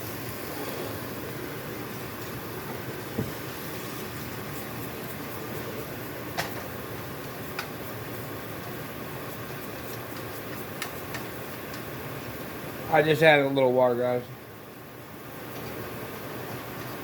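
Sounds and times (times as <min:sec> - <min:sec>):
fan-like kitchen hiss: 0:00.0 - 0:17.0.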